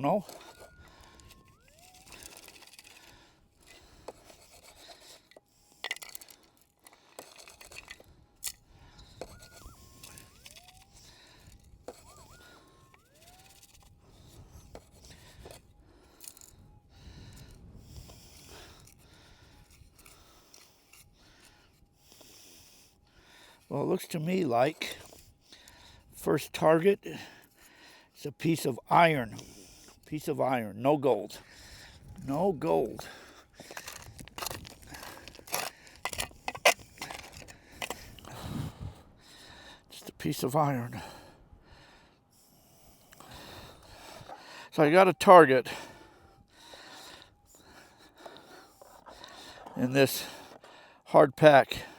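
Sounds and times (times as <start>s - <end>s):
metal detector tone: 0.0s - 19.0s, 32.0s - 38.6s
gravelly dirt crunching and scraping: 0.0s - 21.8s, 28.5s - 41.4s, 43.2s - 51.9s
stones clicking: 33.6s - 38.2s
gravel shaken in plastic scoop: 33.7s - 36.3s.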